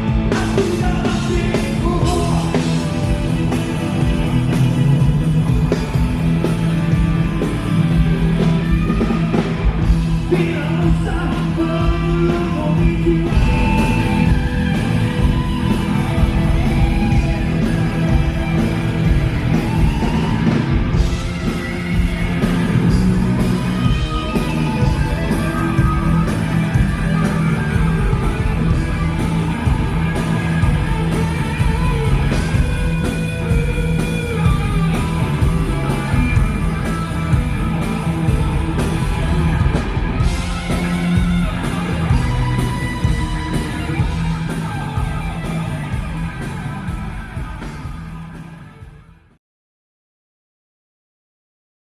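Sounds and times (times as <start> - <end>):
person singing: 0.0 - 3.2, 10.2 - 15.1
guitars: 0.0 - 49.3
bass guitar: 0.0 - 49.4
drums: 0.0 - 49.4.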